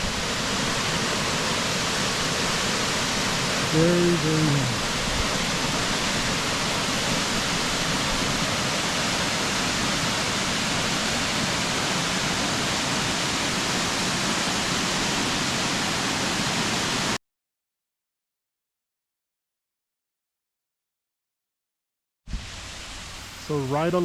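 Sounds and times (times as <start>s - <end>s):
waterfall rushing: 0.0s - 17.2s, 22.4s - 24.0s.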